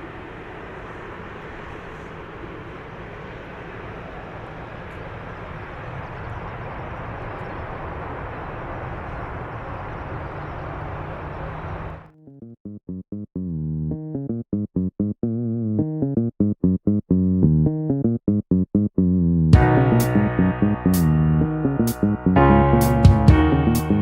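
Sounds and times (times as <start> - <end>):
airliner jet noise landing: 0.0 - 12.1
steady low hum: 0.0 - 18.0, 18.7 - 24.0.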